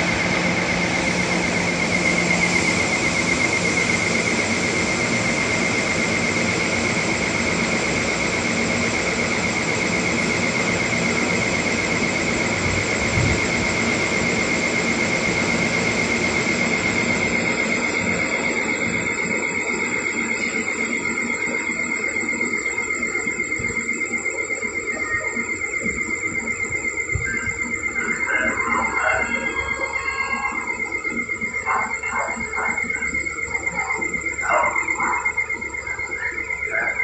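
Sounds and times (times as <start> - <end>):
high-pitched metallic squeal: 26.7 - 37.0.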